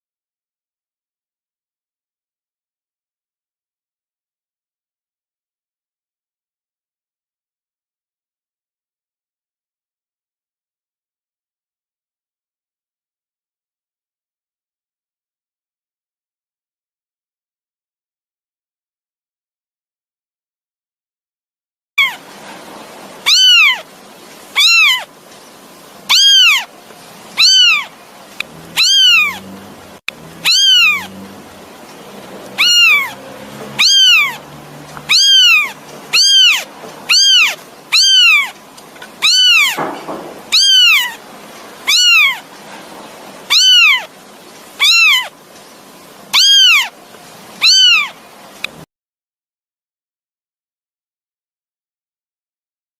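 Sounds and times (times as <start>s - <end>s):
kitten meowing: 22.0s - 22.2s, 23.2s - 23.8s, 24.5s - 25.1s, 26.1s - 26.7s, 27.4s - 29.6s, 30.2s - 31.3s, 32.4s - 38.6s, 39.2s - 41.2s, 41.8s - 42.5s, 43.5s - 44.1s, 44.8s - 45.3s, 46.3s - 47.0s, 47.6s - 48.8s.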